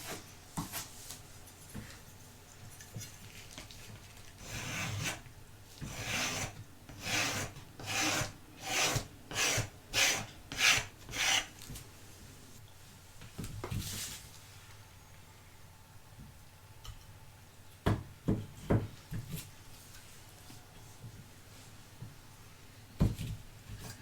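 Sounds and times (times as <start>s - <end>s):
rasping scraping strokes: 5.9s - 11.5s.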